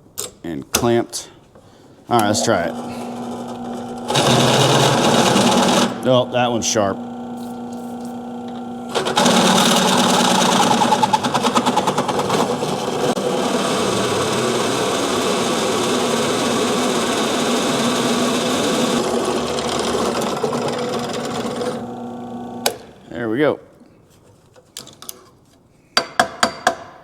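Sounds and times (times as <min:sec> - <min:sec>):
drill boring through steel: 0:02.2 - 0:22.9.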